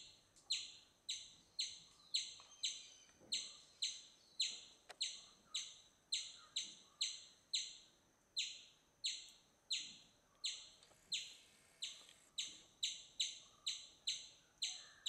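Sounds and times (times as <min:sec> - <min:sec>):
bird sharp high chirp: 0:00.5 - 0:07.7.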